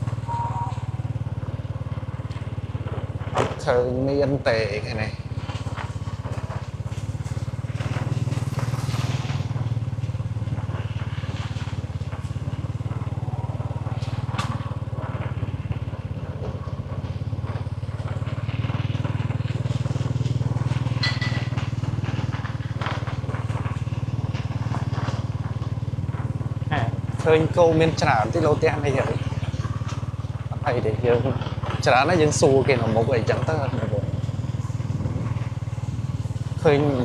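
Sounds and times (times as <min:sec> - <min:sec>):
small engine running steadily: 0:00.0 - 0:37.0.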